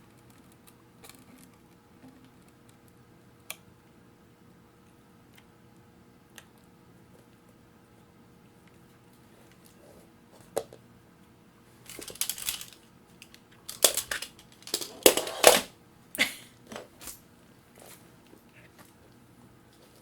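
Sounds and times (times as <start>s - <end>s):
crinkling and rustling handling: 11.8s - 15.7s.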